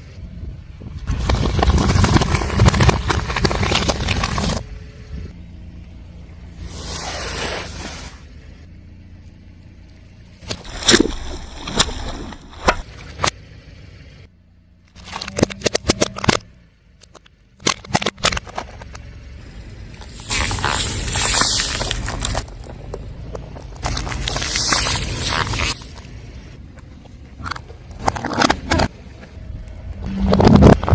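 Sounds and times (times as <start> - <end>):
car engine: 0.0 - 30.9
tyre crushing objects: 1.1 - 4.6, 20.0 - 26.0.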